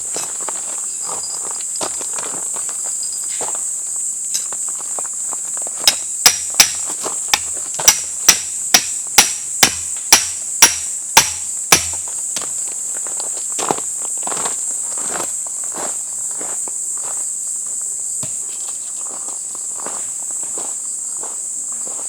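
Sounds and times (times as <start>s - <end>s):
insects droning: 0.0s - 22.0s
hammer striking: 5.9s - 12.1s.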